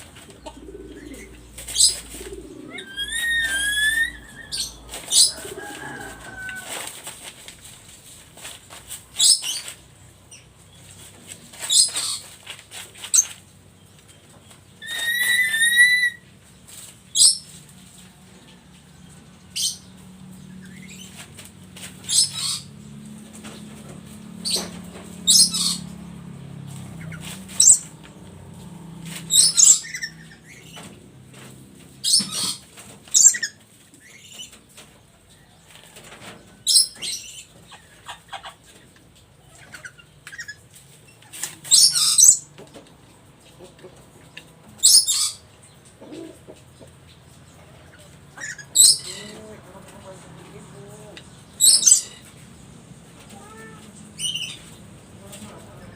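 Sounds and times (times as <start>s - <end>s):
parrot shrill screeches: 2.8s - 5.3s, 14.8s - 16.2s.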